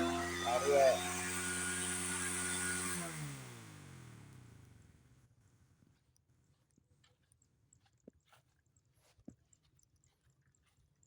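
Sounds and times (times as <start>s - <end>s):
small engine running: 0.0s - 5.0s.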